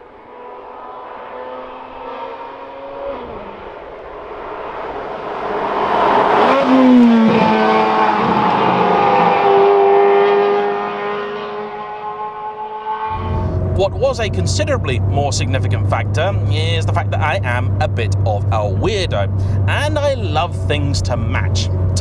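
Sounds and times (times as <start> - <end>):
sports car engine running: 10.5 - 22.0.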